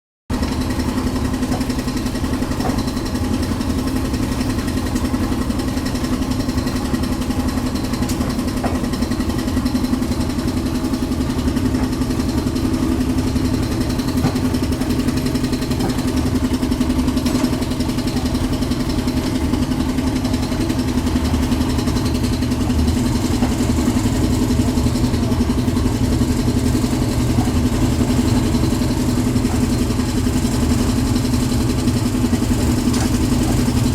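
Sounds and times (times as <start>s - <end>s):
concrete mixer engine droning: 0.3s - 33.9s.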